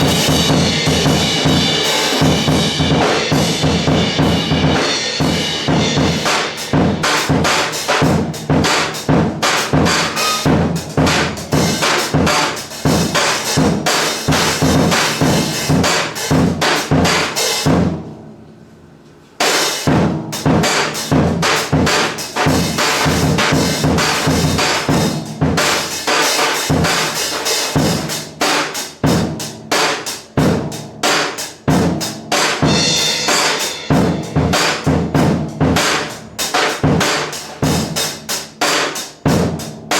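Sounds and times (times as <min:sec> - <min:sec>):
swing big band playing: 0:00.0 - 0:16.1
cymbals: 0:00.0 - 0:17.9, 0:19.4 - 0:39.9
snare drum: 0:00.0 - 0:17.9, 0:19.4 - 0:39.9
bass drum: 0:00.0 - 0:18.0, 0:32.6 - 0:38.0.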